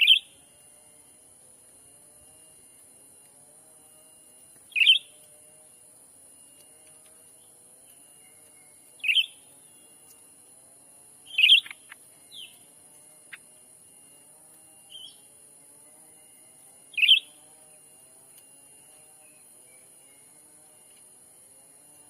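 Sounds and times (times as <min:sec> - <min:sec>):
bird chirping calls: 0:00.0 - 0:00.4, 0:04.7 - 0:05.3, 0:08.1 - 0:10.2, 0:11.2 - 0:12.7, 0:14.9 - 0:15.3, 0:16.9 - 0:17.4.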